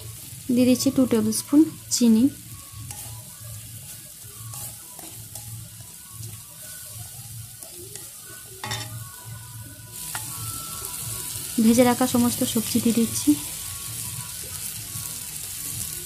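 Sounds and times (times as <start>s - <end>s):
paste sizzling: 0.0s - 16.0s
metal spatula scraping pan: 2.6s - 9.0s.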